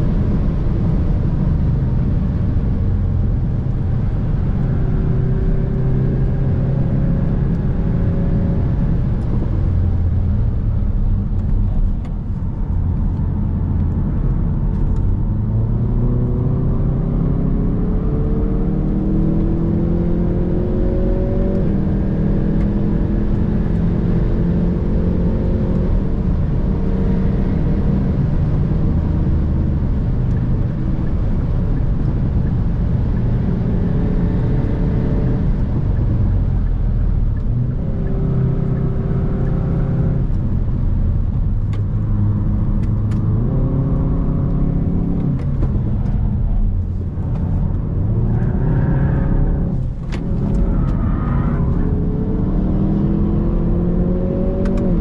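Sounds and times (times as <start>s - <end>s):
car engine revving under load: 0.0s - 55.0s.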